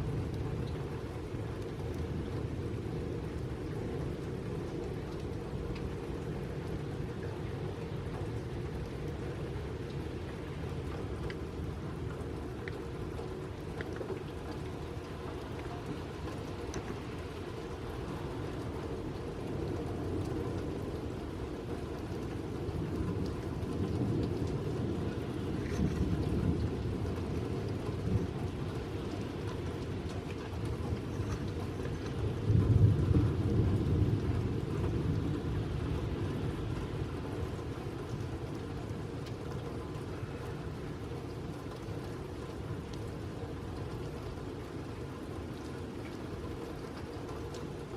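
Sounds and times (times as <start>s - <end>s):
light rain falling: 0.0s - 47.9s
thunder rolling: 32.3s - 35.9s.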